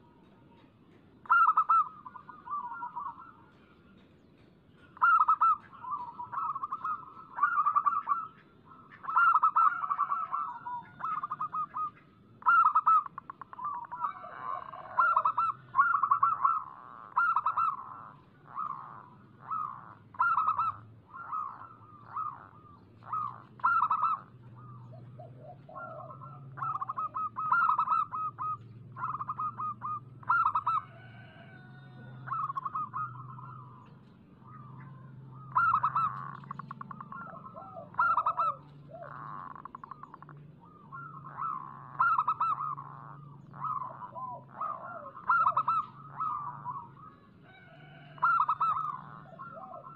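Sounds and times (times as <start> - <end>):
dove cooing: 0.0 - 49.9.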